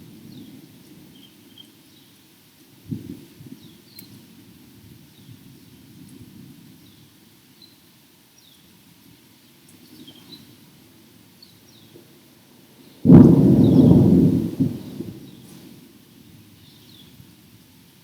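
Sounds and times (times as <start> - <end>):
birds chirping: 13.0 - 15.6
loud thunderclap: 13.1 - 15.3.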